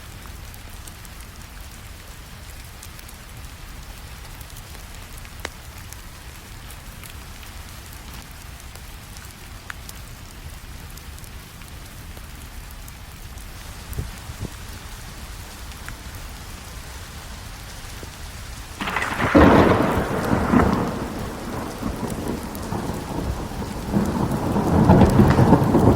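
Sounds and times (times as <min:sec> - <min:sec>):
rain hiss: 0:00.0 - 0:25.9
wood fire crackling: 0:00.1 - 0:25.9
fire pops: 0:18.7 - 0:25.9.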